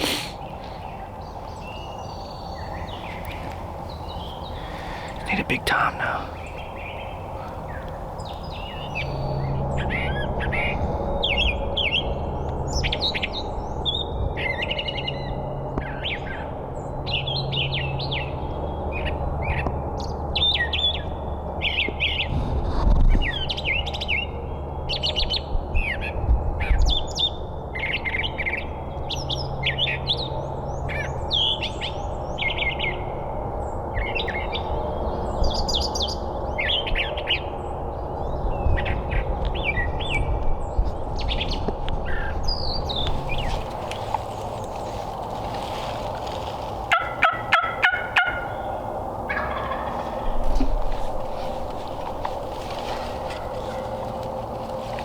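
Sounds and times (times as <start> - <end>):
songbirds chirping and singing: 0.0 - 15.2, 26.9 - 55.0
low steady hum: 32.0 - 55.0.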